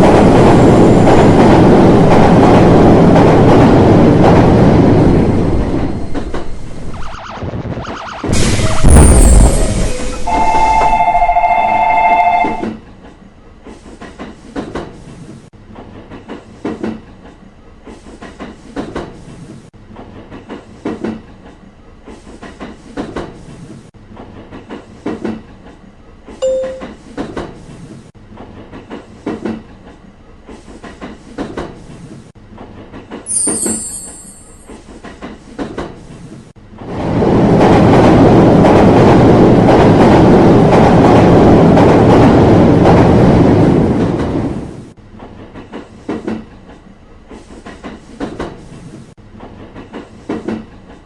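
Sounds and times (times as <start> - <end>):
brief high squeal: 8.4 - 11.0
two-tone train horn: 9.9 - 12.7
train wheels clattering over rail joints: 27.1 - 33.8, 45.1 - 51.0.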